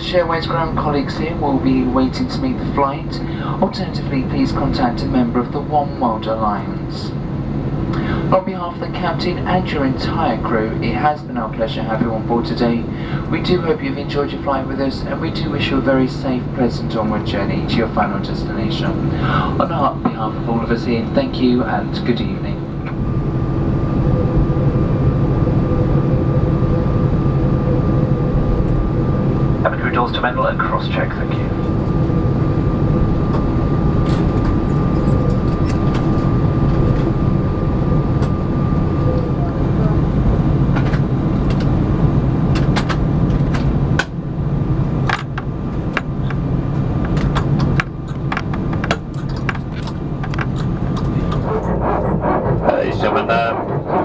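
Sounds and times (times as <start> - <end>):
aircraft engines idling rumble: 0.0 - 54.0.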